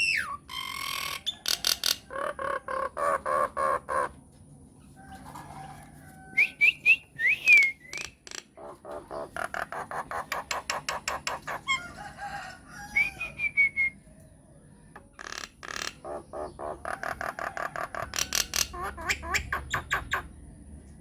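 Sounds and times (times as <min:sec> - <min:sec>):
myna chattering and calling: 0:00.0 - 0:04.2, 0:07.9 - 0:12.0, 0:15.0 - 0:20.4.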